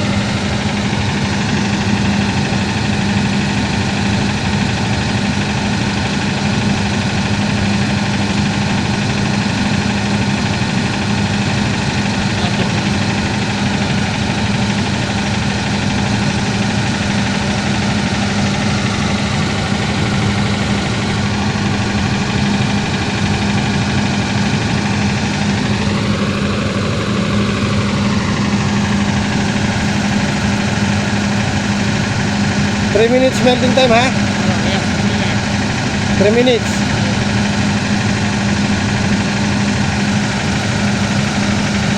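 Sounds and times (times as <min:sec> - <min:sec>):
engine humming steadily: 0:00.0 - 0:41.9.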